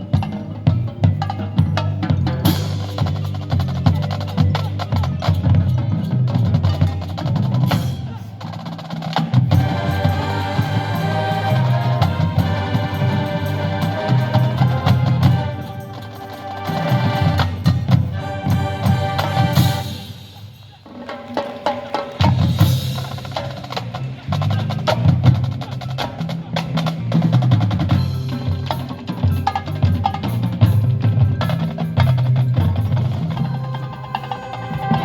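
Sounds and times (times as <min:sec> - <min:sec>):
marching band playing: 0:00.0 - 0:35.0
low brass chords: 0:09.5 - 0:20.6.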